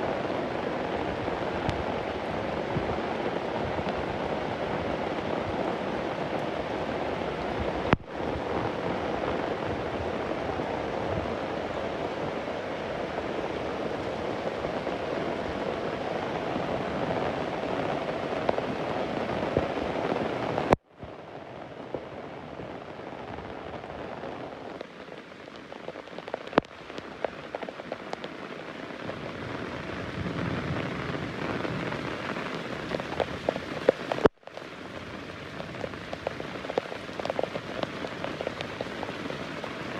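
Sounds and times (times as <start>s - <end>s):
steady rain hiss: 0.0s - 39.9s
raindrops ticking: 21.8s - 39.9s.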